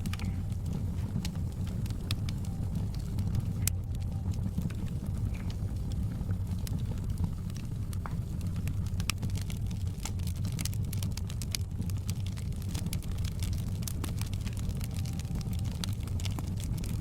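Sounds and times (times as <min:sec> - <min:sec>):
fire pops and snaps: 0:00.0 - 0:17.0
wood fire crackling: 0:00.0 - 0:17.0.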